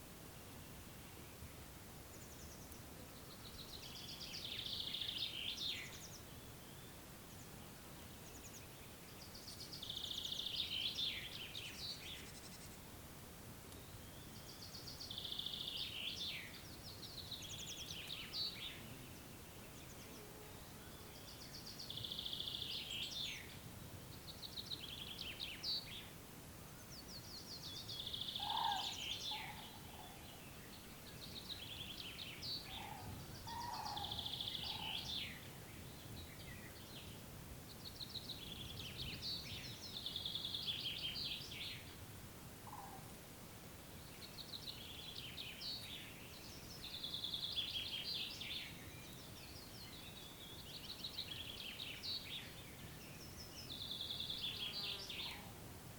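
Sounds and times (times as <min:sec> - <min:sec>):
background hiss: 0:00.0 - 0:55.9
faint lower bird calls: 0:02.1 - 0:12.8, 0:13.7 - 0:26.1, 0:26.7 - 0:42.0, 0:42.6 - 0:43.2, 0:44.0 - 0:55.7
songbird trilling: 0:27.7 - 0:30.4, 0:31.4 - 0:35.4.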